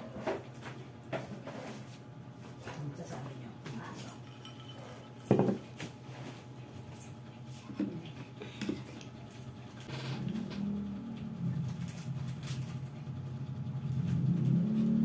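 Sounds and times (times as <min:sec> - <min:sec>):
spoon clinking on bowl: 0:04.2 - 0:05.6.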